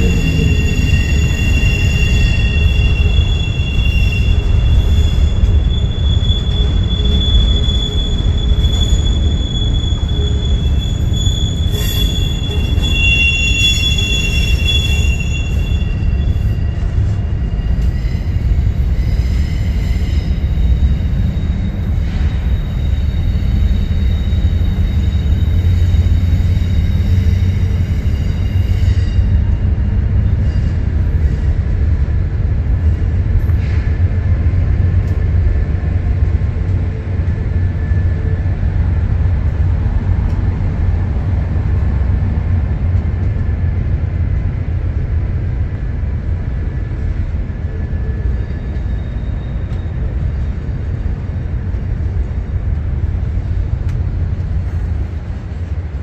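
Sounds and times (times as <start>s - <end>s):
wheel squeal: 0.0s - 31.5s, 47.8s - 51.2s
freight train rumbling: 0.0s - 56.0s.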